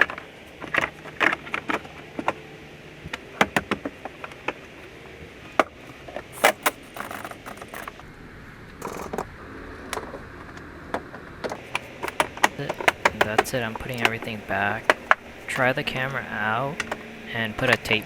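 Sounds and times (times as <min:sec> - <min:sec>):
small tools clicking and rattling: 0:05.6 - 0:08.0, 0:08.8 - 0:09.3, 0:11.5 - 0:18.0
scraping rattle: 0:06.1 - 0:08.0, 0:08.8 - 0:09.3.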